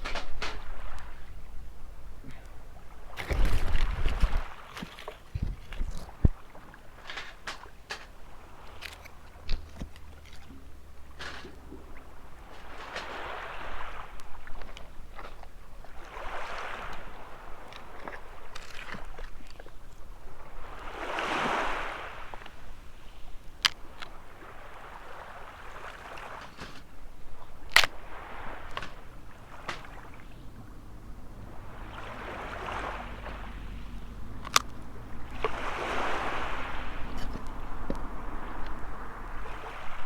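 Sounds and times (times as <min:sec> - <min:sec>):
small waves washing ashore: 0:00.0 - 0:40.0
sharp clicks: 0:34.4 - 0:34.8.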